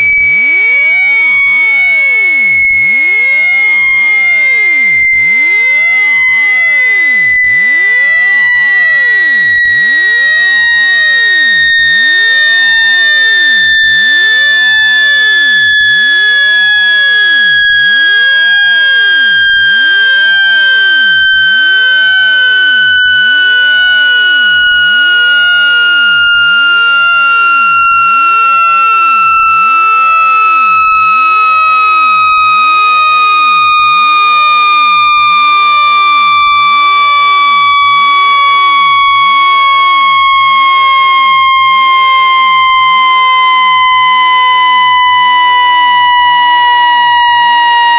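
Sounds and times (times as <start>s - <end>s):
buzzy tone gliding downward: 0.0s - 31.2s.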